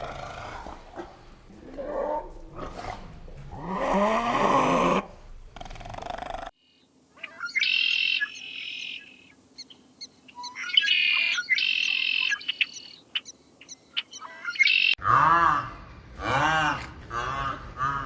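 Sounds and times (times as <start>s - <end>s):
bird harsh buzzy calls: 6.5s - 15.0s
bird ticks and chirps: 6.6s - 15.0s.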